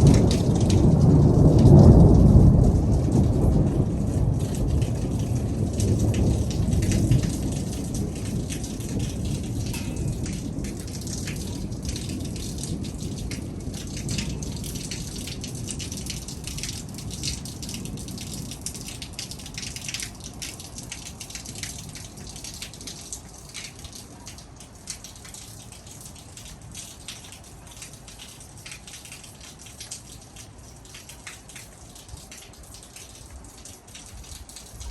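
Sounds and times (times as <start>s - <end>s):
heavy rain on hard surfaces: 0.0s - 34.9s.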